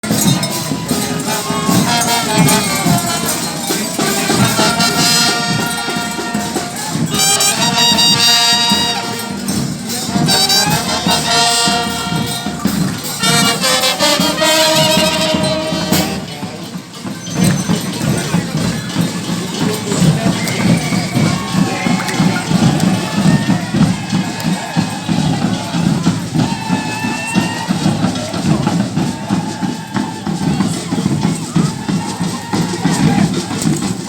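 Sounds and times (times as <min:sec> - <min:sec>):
jingling percussion: 0:00.0 - 0:34.0
steady drums: 0:00.0 - 0:34.0
brass playing: 0:00.8 - 0:16.4.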